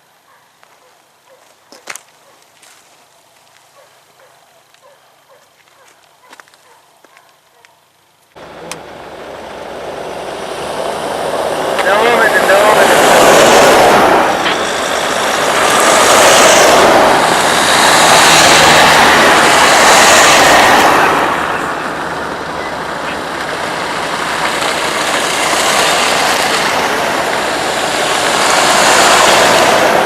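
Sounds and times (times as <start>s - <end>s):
vehicle road and wind noise: 8.3s - 30.0s.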